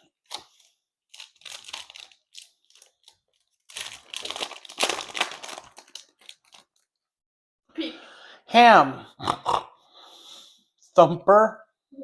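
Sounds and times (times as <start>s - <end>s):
foil wrapper crinkling: 0.2s - 7.0s.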